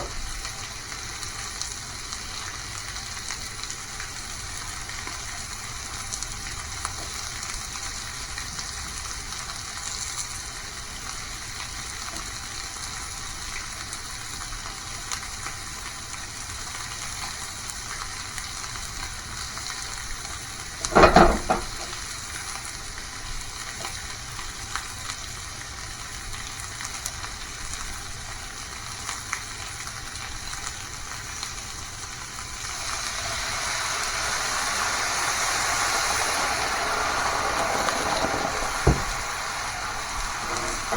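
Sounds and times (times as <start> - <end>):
food sizzling in a frying pan: 0.0 - 40.9
loud clatter: 20.8 - 22.1, 32.6 - 40.9.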